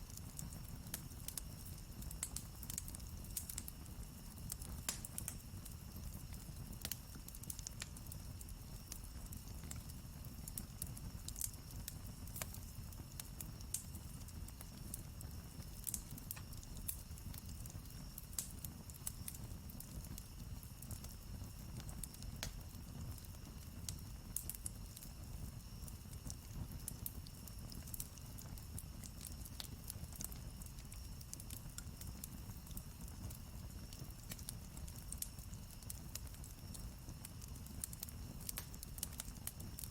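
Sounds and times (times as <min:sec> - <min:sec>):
campfire crackling and popping: 0:00.0 - 0:39.9
low rumble of flames: 0:00.0 - 0:39.9.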